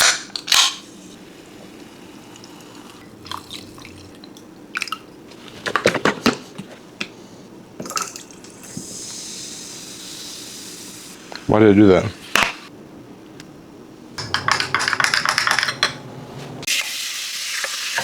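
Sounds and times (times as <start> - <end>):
liquid dripping and pouring: 2.4 - 5.2
steady hiss: 8.4 - 14.2
containers and utensils knocking: 14.2 - 16.1.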